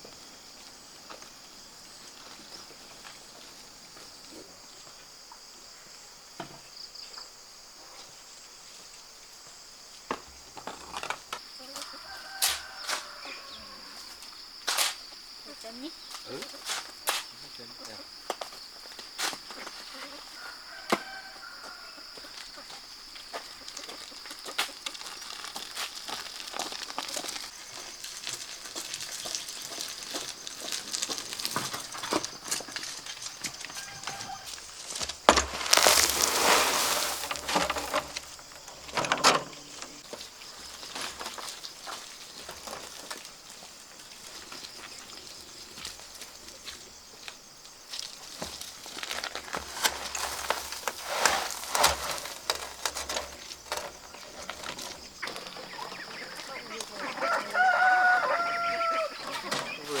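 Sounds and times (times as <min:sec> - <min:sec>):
shovel scraping cement mix: 0:35.0 - 0:39.2, 0:48.4 - 0:55.2
material being poured: 0:35.3 - 0:38.4, 0:49.0 - 0:53.4.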